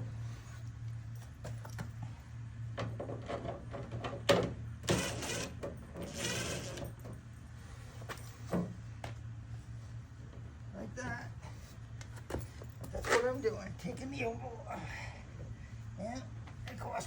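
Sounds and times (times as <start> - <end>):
low steady hum: 0.0 - 17.0
metal downspout rattling and scraping: 2.8 - 7.2.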